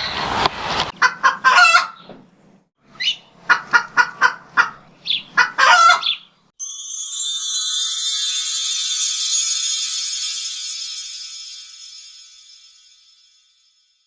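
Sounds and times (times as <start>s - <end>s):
music: 6.6s - 13.9s.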